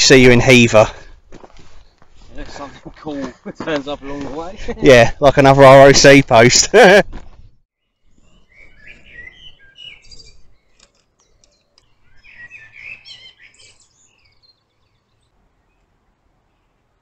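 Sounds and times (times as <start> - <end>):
songbirds twittering faintly: 1.0 - 3.5, 7.4 - 17.0.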